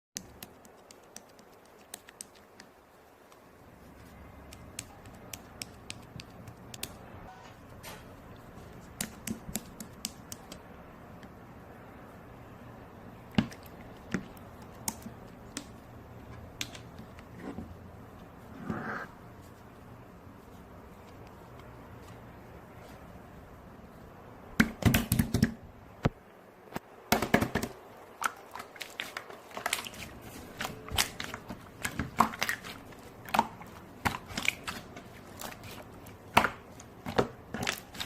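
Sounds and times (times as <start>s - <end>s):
sharp clicks and taps: 0.2s - 3.5s, 4.4s - 7.1s, 8.8s - 11.4s.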